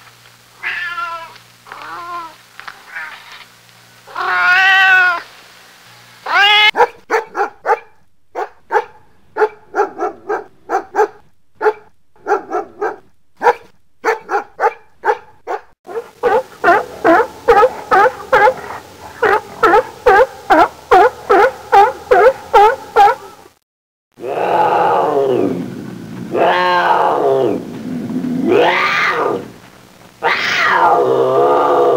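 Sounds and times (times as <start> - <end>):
cat meowing: 0.6 - 3.3, 4.1 - 5.2, 6.3 - 6.7, 30.2 - 31.1
dog barking: 6.7 - 23.4.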